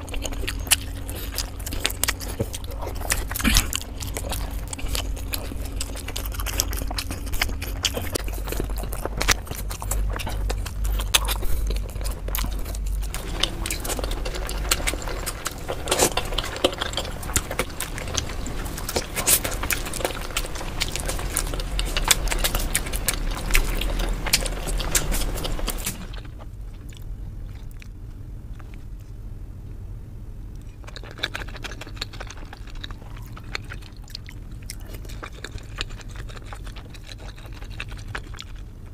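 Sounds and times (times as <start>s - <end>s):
close-miked chewing: 0.0s - 29.3s, 30.5s - 38.9s.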